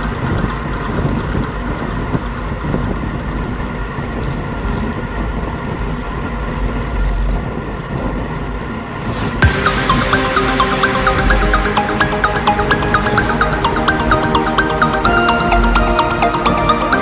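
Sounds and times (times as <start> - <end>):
steady rumbling noise: 0.0 - 17.0
loud electronic music: 9.0 - 17.0.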